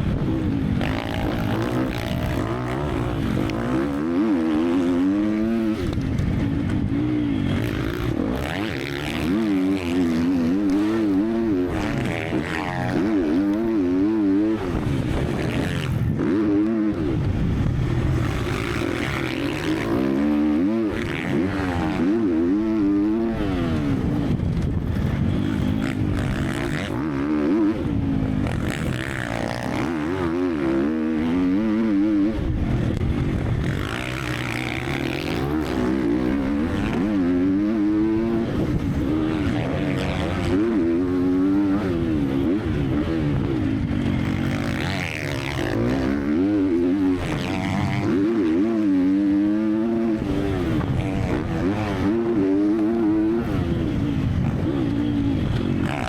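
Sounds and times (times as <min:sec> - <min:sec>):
motorbike engine revving: 0:00.0 - 0:56.0.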